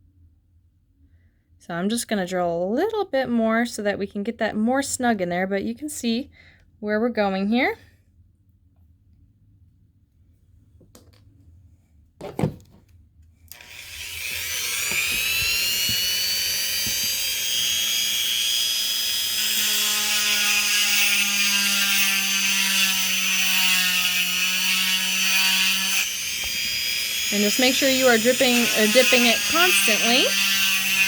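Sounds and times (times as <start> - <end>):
rotary tool motor whining: 13.5 - 31.0.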